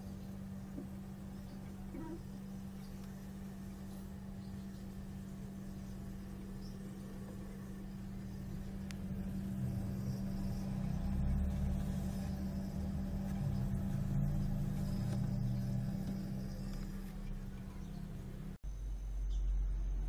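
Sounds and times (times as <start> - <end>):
small electric motor humming: 0.8 - 17.4.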